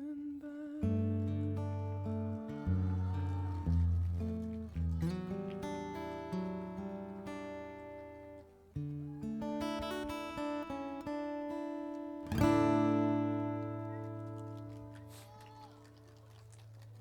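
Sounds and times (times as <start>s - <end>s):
acoustic guitar picking: 0.0s - 15.4s.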